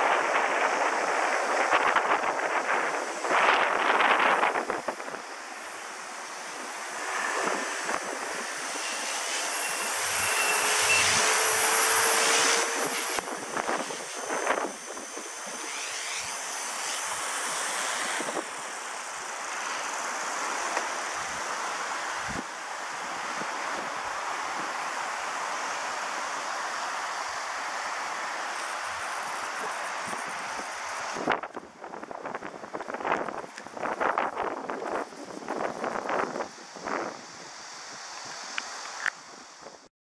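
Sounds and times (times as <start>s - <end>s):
wind buffeting microphone: 0.0s - 5.7s, 6.4s - 16.5s, 29.6s - 38.4s
rc helicopter motor whine: 0.0s - 39.4s.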